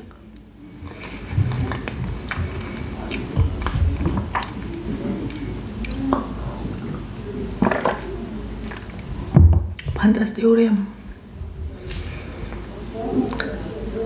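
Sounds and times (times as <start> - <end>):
wet chewing and smacking: 0.0 - 7.0, 13.3 - 13.7.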